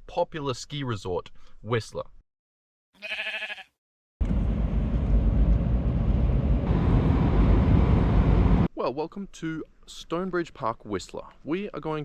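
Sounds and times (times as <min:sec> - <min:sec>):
car driving road noise: 0:04.2 - 0:08.7.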